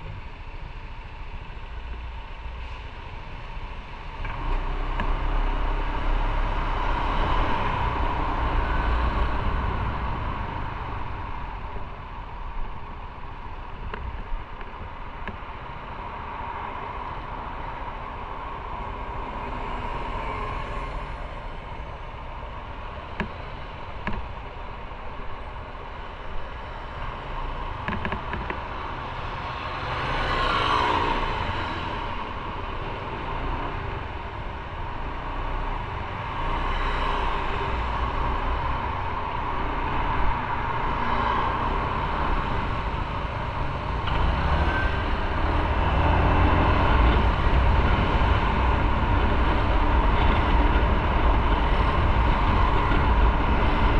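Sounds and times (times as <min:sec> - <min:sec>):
road and wind noise: 0:00.0 - 0:53.9
motorcycle running: 0:37.4 - 0:53.9.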